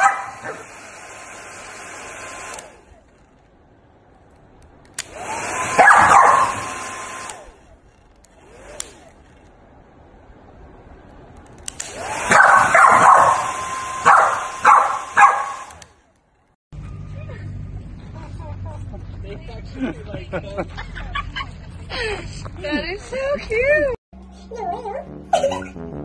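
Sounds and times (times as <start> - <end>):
dog barking: 0.0 - 0.7, 5.8 - 6.7, 12.3 - 15.7
hair dryer hissing: 0.0 - 3.0, 5.0 - 7.6, 11.7 - 15.9
dog yipping and howling: 5.8 - 6.7, 12.3 - 15.6.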